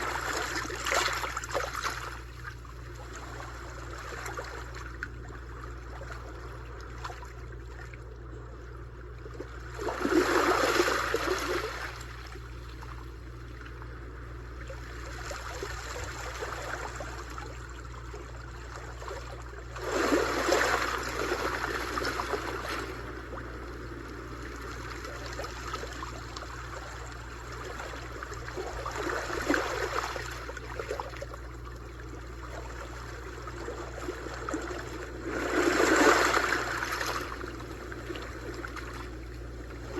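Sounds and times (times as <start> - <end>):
constant low rumble: 0.0 - 39.9
sea waves washing onto shore: 19.8 - 30.3, 33.4 - 39.9.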